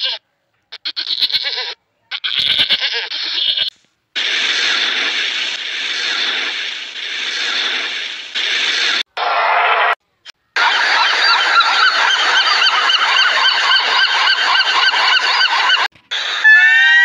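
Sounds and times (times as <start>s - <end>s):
lambs bleating: 0.0s - 3.7s
steady rushing noise: 4.2s - 9.9s.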